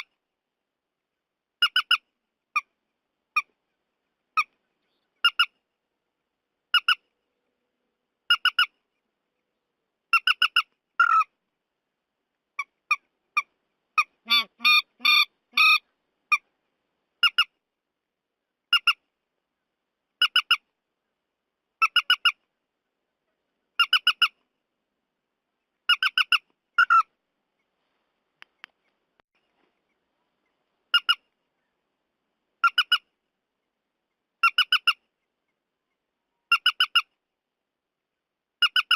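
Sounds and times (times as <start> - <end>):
bird calls: 1.6 - 5.6, 10.1 - 11.3, 12.6 - 16.6, 25.6 - 27.8, 28.4 - 31.8.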